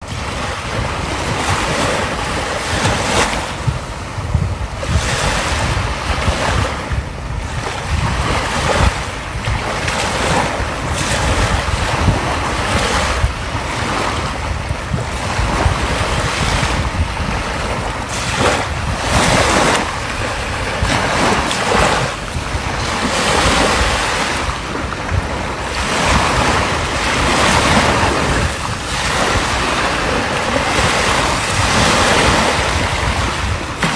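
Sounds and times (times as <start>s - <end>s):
sea waves breaking on shore: 0.0s - 33.9s
wind buffeting microphone: 0.0s - 33.9s.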